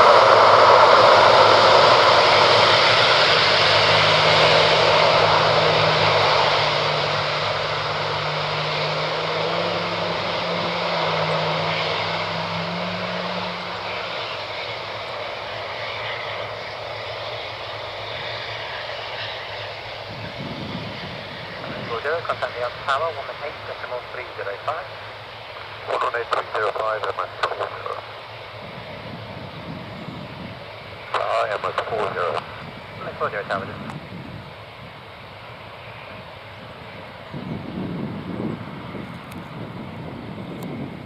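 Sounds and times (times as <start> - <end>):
jet engine noise: 0.0 - 41.0.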